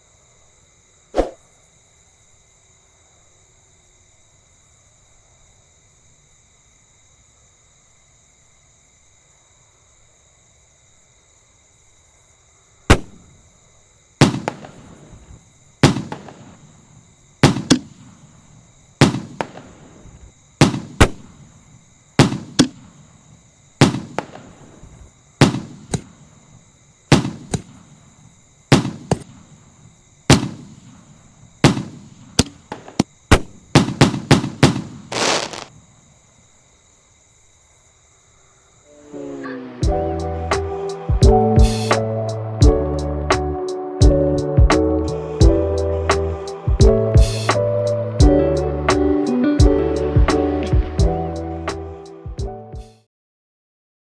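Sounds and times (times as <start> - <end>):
firework bangs with echo: 14.2 - 16.7, 17.4 - 18.3, 19.0 - 21.5, 22.2 - 23.0, 23.8 - 26.3, 27.1 - 28.0, 28.7 - 29.6, 30.3 - 35.7.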